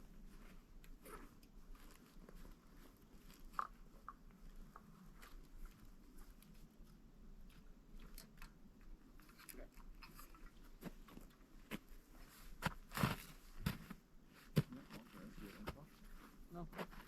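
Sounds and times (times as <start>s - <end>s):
faint crunching and clicking: 0.2s - 12.0s.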